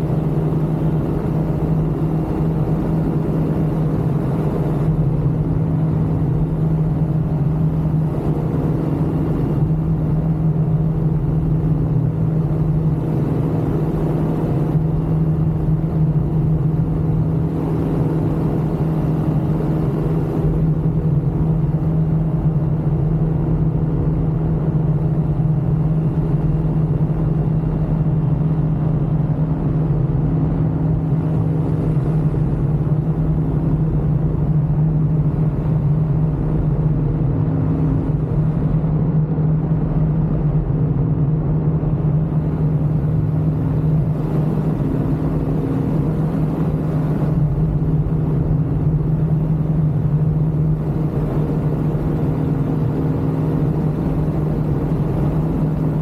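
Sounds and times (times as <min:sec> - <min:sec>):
aircraft engine and propeller drone: 0:00.0 - 0:56.0.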